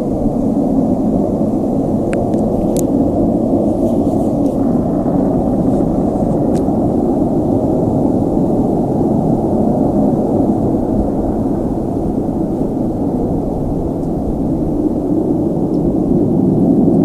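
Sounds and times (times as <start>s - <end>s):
loud low rumble: 0.0s - 17.0s.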